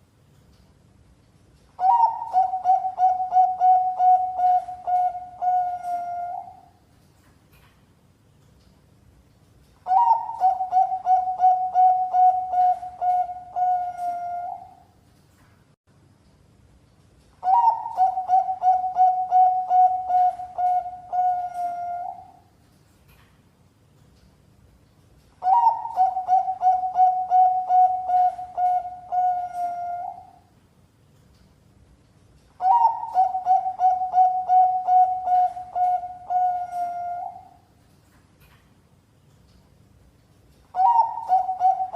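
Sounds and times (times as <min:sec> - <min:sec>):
dove cooing: 0:01.8 - 0:06.7, 0:09.9 - 0:14.8, 0:17.4 - 0:22.4, 0:25.4 - 0:30.4, 0:32.6 - 0:37.6, 0:40.8 - 0:41.9.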